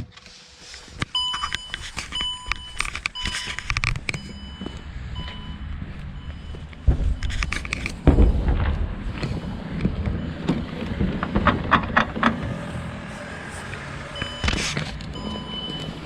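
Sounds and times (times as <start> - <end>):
car warning chime beeping: 1.1 - 8.0, 13.8 - 16.0
low rumbling: 3.8 - 15.7
loud thumps: 6.6 - 12.7.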